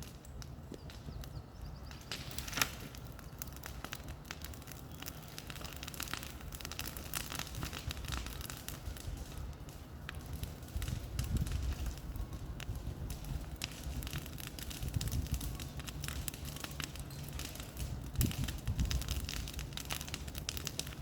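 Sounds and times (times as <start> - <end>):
bonfire crackling and popping: 0.0 - 21.0.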